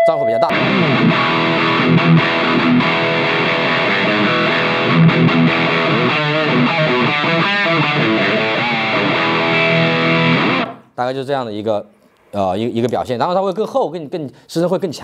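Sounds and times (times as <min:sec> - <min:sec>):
distorted electric guitar: 0:00.0 - 0:10.9.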